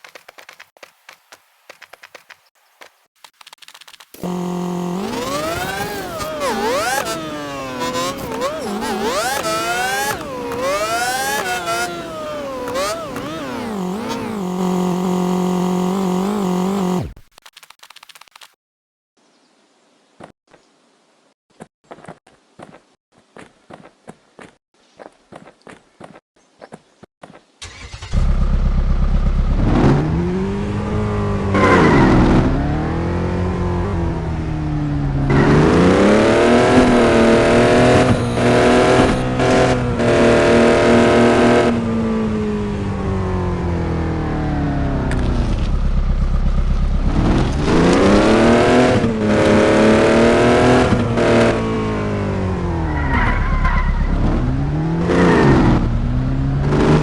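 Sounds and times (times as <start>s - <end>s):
truck engine revving: 4.2s - 17.2s, 27.7s - 34.5s, 35.2s - 42.8s, 44.6s - 57.0s.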